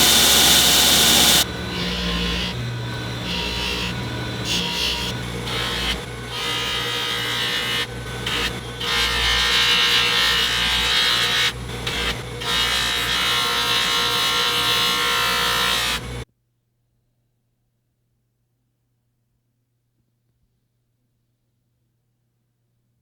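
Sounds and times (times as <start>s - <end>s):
belt grinder motor hum: 0.0s - 16.2s
rasping grind on abrasive belt: 0.0s - 16.2s.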